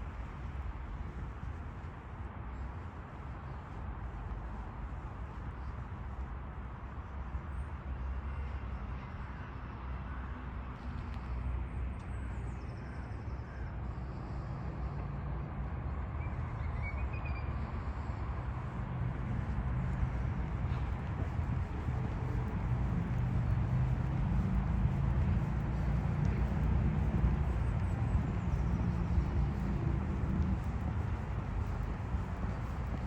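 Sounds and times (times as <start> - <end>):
distant traffic rumble: 13.6 - 33.0.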